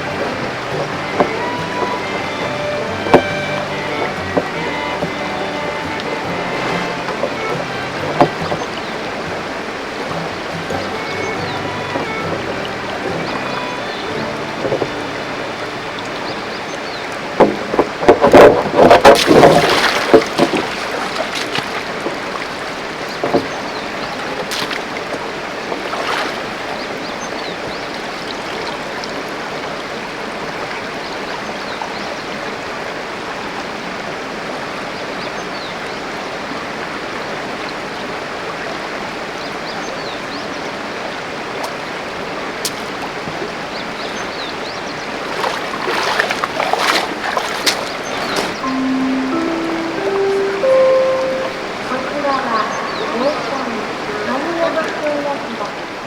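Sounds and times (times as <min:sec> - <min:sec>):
sharp knocks or splashes: 0:00.0 - 0:15.2, 0:17.3 - 0:29.4, 0:41.6 - 0:44.4, 0:45.1 - 0:52.0
stream rushing over rocks: 0:00.0 - 0:56.0.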